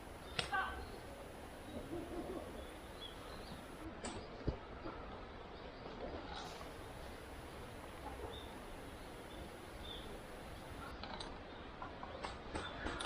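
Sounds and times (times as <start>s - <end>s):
steady woodland hush: 0.0s - 13.0s
faint high bird chirps: 8.2s - 10.9s.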